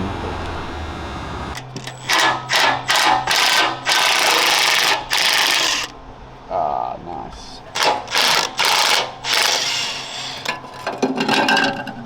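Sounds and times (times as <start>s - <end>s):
power wrench rattling bursts: 1.6s - 5.9s, 7.7s - 10.4s
steady low hum: 5.9s - 7.8s.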